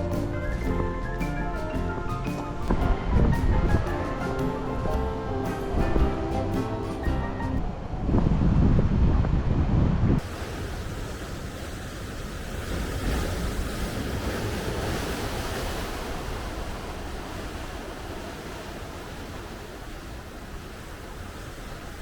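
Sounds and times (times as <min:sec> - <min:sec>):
sea surf washing ashore: 0:00.0 - 0:08.7, 0:10.1 - 0:22.0
strong wind: 0:00.0 - 0:22.0.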